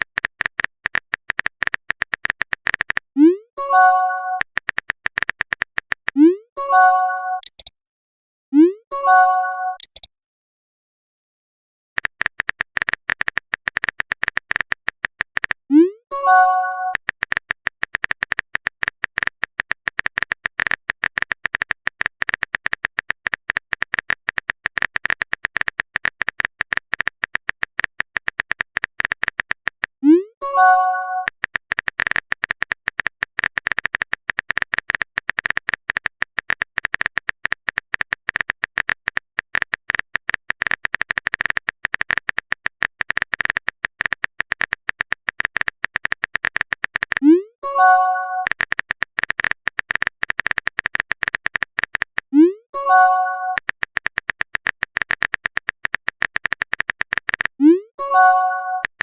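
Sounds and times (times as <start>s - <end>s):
phone keyboard typing clicks: 0.0s - 7.7s, 9.2s - 10.1s, 12.0s - 59.0s
message sent pop and chime: 3.3s - 4.5s, 6.2s - 7.6s, 8.6s - 9.9s, 16.1s - 17.0s, 30.4s - 31.3s, 47.2s - 48.6s, 52.8s - 53.6s, 58.0s - 58.9s.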